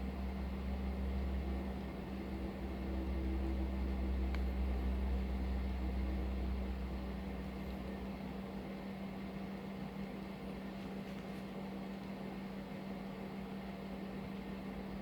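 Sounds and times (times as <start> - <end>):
faint tick: 4.3 - 4.5.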